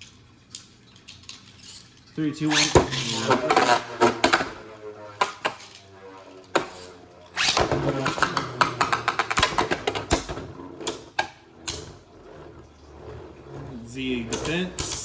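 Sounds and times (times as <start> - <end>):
spinning tops whirring: 0.6 - 15.0
spinning tops clashing: 1.0 - 12.0.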